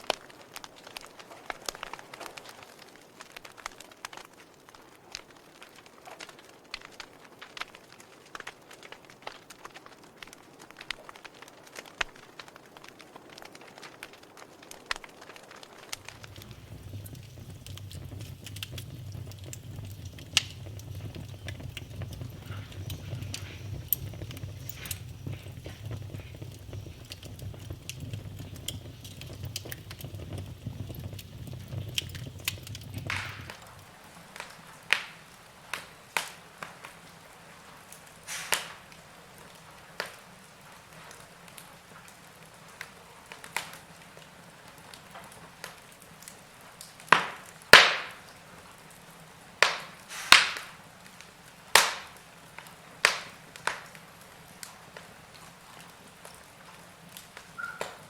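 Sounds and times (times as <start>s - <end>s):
low rumble of flame: 0.0s - 38.2s, 48.4s - 58.0s
wood fire crackling and popping: 0.0s - 58.0s.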